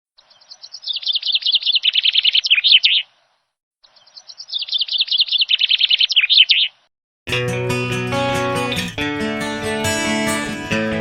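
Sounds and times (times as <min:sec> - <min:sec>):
bird song high chirps: 0:00.2 - 0:06.9.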